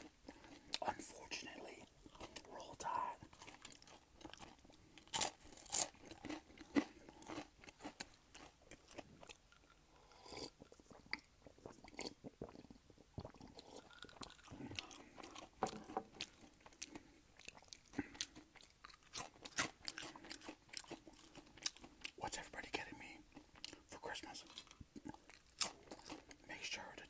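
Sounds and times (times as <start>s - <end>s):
chewing with crunches: 0.0s - 22.6s, 23.2s - 26.7s
crunchy bite: 3.4s - 10.6s, 16.2s - 21.8s.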